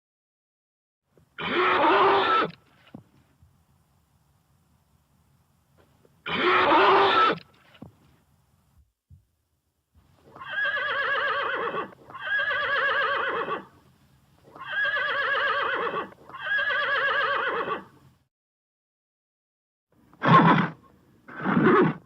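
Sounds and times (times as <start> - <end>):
horse whinnying: 1.4 - 2.6, 6.2 - 7.5, 10.3 - 13.7, 14.5 - 17.9, 20.1 - 22.0.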